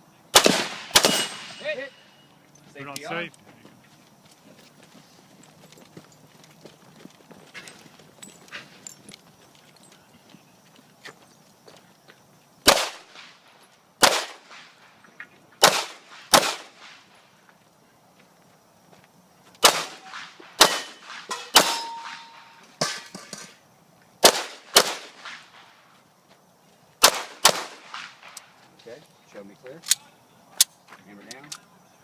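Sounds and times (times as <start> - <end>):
pistol shots: 0.3 - 1.9, 12.6 - 13.4, 14.0 - 14.7, 15.6 - 17.0, 19.6 - 22.6, 24.2 - 25.5, 27.0 - 28.4
steel targets clanging: 0.9 - 2.3, 20.7 - 23.6.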